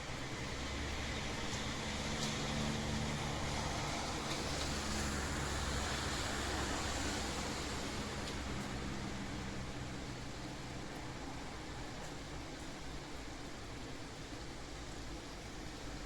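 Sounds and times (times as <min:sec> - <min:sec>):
steady rain falling: 0:06.3 - 0:16.0.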